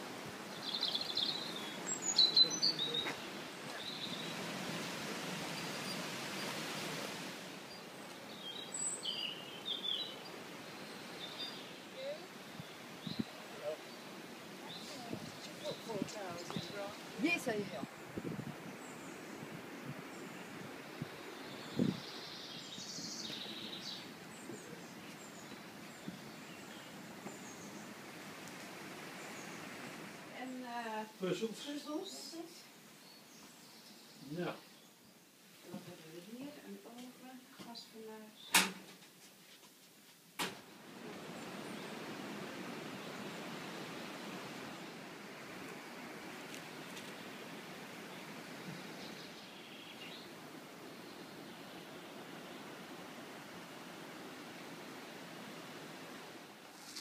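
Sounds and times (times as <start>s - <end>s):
songbirds chirping: 0.0s - 57.0s
steady background hiss: 0.0s - 57.0s.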